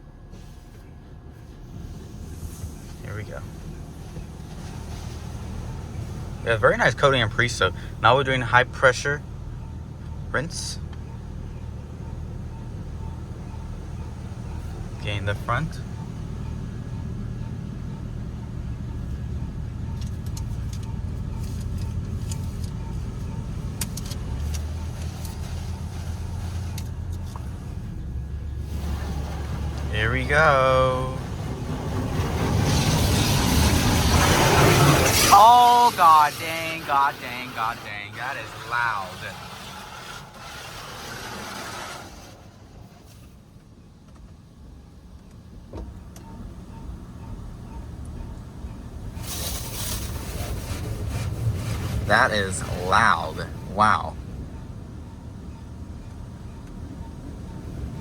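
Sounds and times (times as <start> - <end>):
low steady rumble: 0.0 - 58.0
water jets spraying on car: 1.6 - 8.4, 23.9 - 27.8, 28.6 - 43.4, 49.2 - 54.1.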